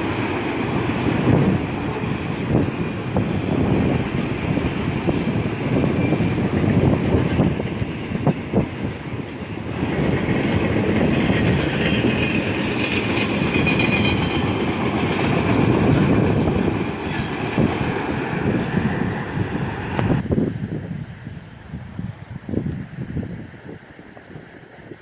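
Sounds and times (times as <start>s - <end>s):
train wheels clacking over rail joints: 0.0s - 19.2s.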